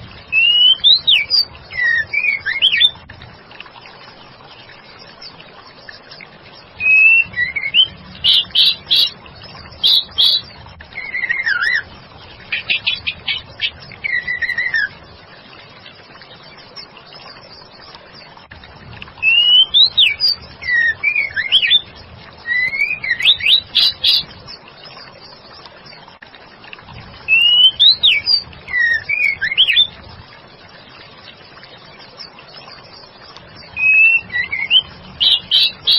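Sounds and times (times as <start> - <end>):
bird singing whistles and chatter: 0.3 - 3.0, 6.8 - 9.2, 12.7 - 15.0, 19.2 - 24.3, 27.3 - 29.9, 33.6 - 35.9.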